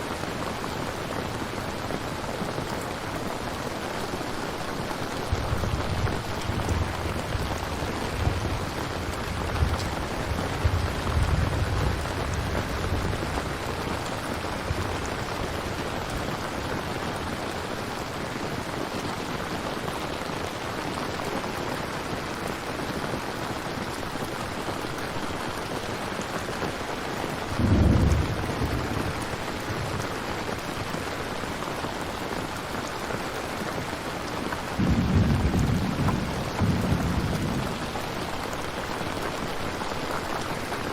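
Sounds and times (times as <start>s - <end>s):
steady rain: 0.0s - 40.9s
low thunder rumbles: 4.7s - 17.4s, 27.5s - 30.7s, 34.8s - 39.8s.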